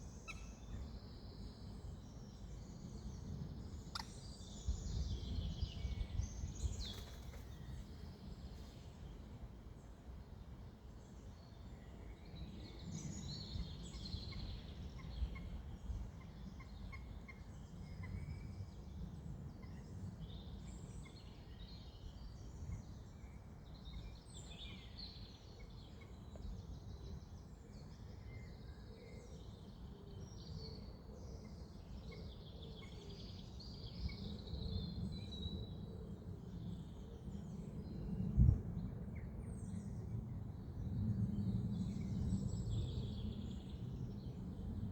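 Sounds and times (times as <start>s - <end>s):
low wind rumble: 0.7s - 23.4s, 33.2s - 44.9s.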